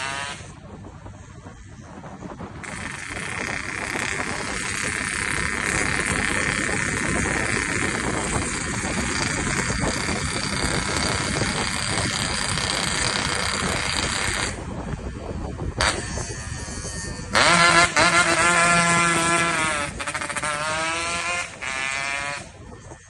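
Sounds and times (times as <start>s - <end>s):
motorcycle at high revs: 0.0s - 0.6s, 2.6s - 14.6s, 17.3s - 22.6s.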